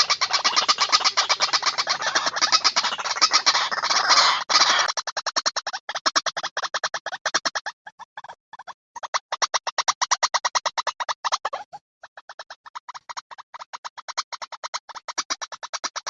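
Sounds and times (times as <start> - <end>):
waterhen call: 0.0 - 6.3.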